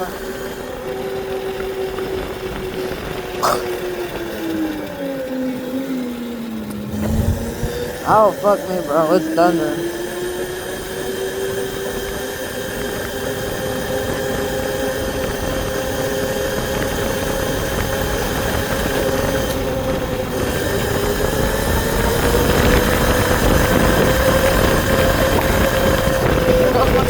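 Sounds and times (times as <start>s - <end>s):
dirt bike engine running: 0.0s - 8.6s.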